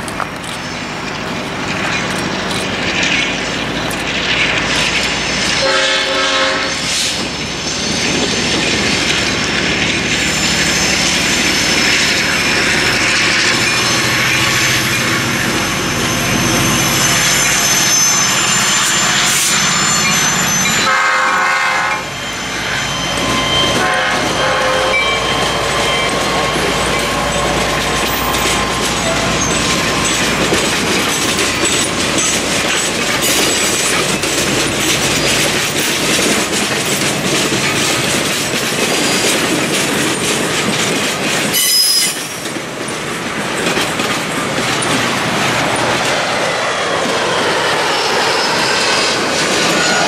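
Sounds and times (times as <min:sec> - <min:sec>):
diesel train running past: 0:00.0 - 0:50.0
high wheel squeal: 0:00.5 - 0:40.5, 0:41.4 - 0:42.8, 0:43.9 - 0:50.0
locomotive air horn: 0:05.6 - 0:07.2, 0:17.6 - 0:27.2.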